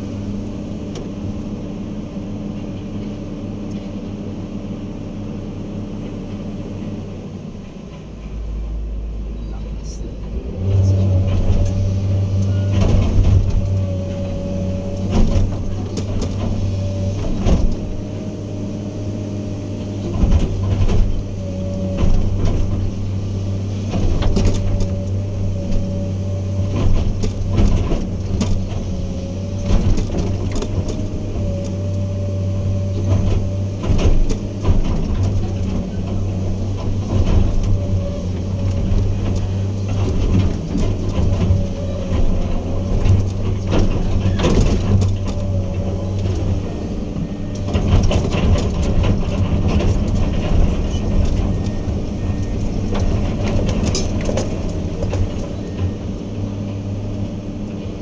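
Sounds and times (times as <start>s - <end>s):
diesel engine droning: 0.0s - 58.0s
metal clanks and knocks: 32.7s - 56.2s.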